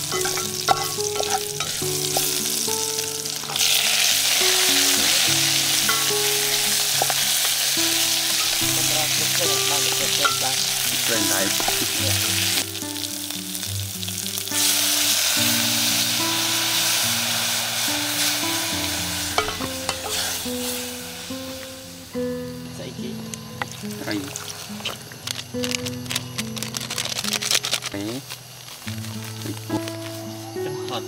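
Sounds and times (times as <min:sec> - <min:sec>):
food sizzling in a pot: 0:00.0 - 0:31.0
spoon stirring: 0:00.1 - 0:01.8.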